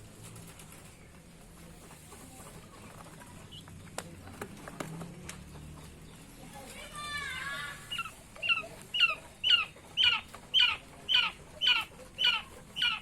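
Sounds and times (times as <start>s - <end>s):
quail-type bird calling: 7.8s - 13.0s.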